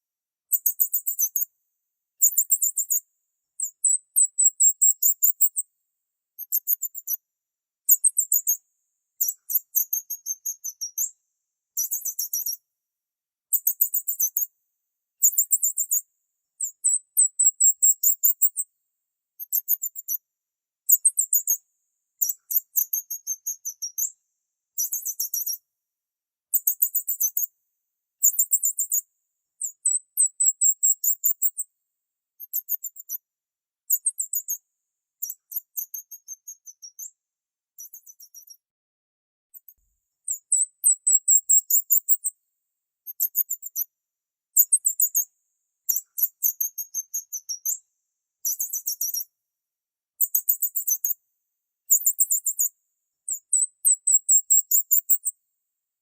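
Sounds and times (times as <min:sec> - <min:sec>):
high-pitched bird chirping trills: 0:02.2 - 0:03.0, 0:09.2 - 0:11.1, 0:11.8 - 0:12.6, 0:29.6 - 0:31.6, 0:33.9 - 0:34.6, 0:35.2 - 0:37.1, 0:37.8 - 0:38.6, 0:40.3 - 0:42.3, 0:45.9 - 0:47.8, 0:48.4 - 0:49.2, 0:53.3 - 0:55.3.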